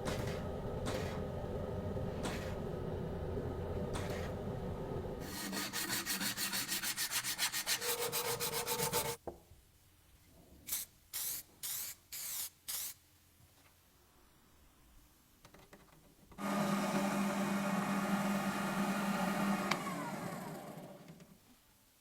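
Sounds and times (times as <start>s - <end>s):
hand sanding strokes: 5.2s - 9.2s.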